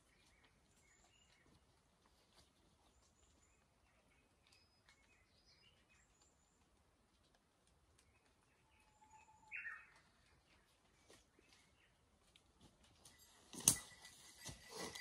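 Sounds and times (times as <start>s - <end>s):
faint bird chirps: 8.0s - 12.0s.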